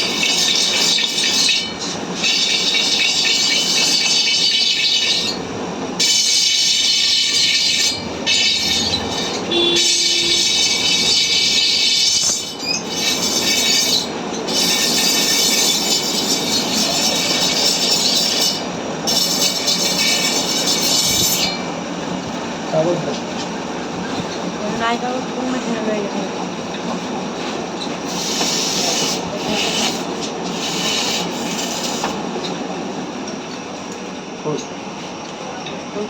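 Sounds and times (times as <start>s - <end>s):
metal-on-metal squealing and grinding: 0.1s - 5.4s, 6.0s - 21.6s.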